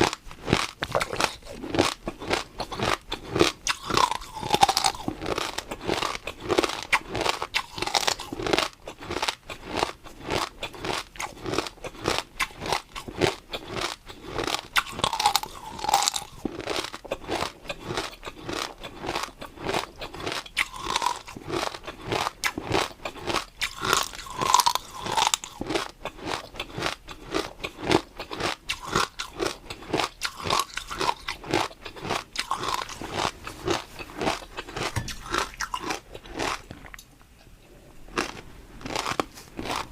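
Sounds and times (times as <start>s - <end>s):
wet mouth sounds: 0.0s - 8.2s
crunchy food being chewed: 0.0s - 37.5s, 38.1s - 39.9s.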